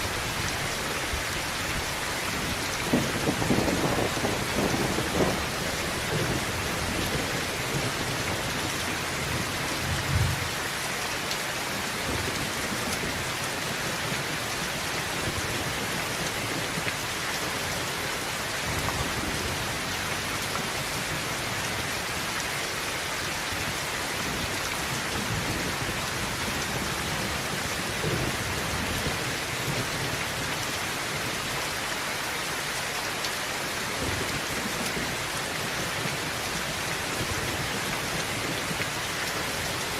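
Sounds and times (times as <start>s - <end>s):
heavy rain on a tin roof: 0.0s - 39.9s
low rumble of thunder: 1.2s - 10.6s, 24.2s - 30.6s.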